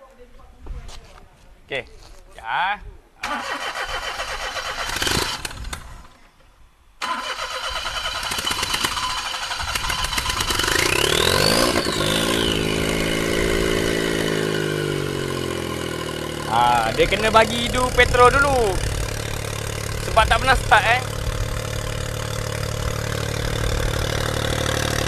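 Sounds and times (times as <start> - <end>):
car starter cranking: 3.2 - 6.0, 7.0 - 11.9
car engine revving and idling: 8.0 - 25.0.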